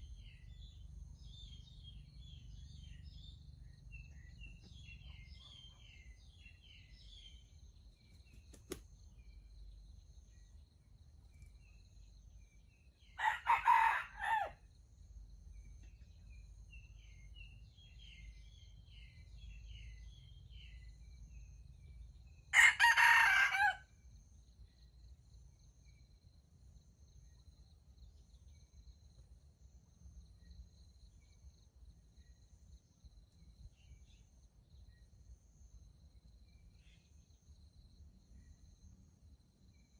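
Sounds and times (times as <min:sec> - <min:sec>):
small birds chirping: 0:00.0 - 0:13.4, 0:15.4 - 0:22.5
rooster crowing: 0:13.2 - 0:14.6, 0:22.5 - 0:23.9.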